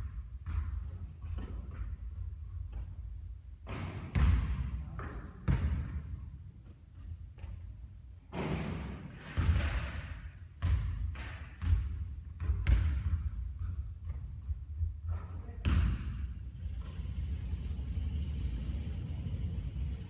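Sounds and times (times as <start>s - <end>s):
basketball bouncing on court: 0.1s - 3.1s, 3.7s - 6.8s, 8.3s - 17.5s.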